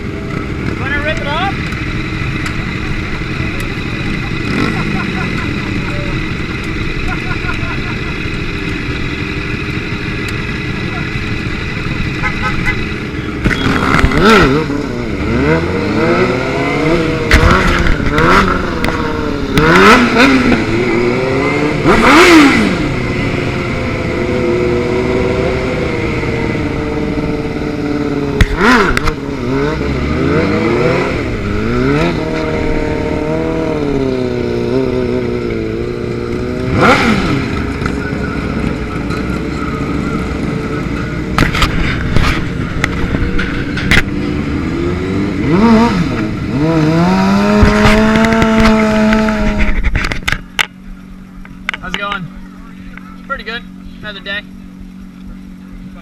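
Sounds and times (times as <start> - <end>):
motorcycle engines revving: 0.0 - 56.0.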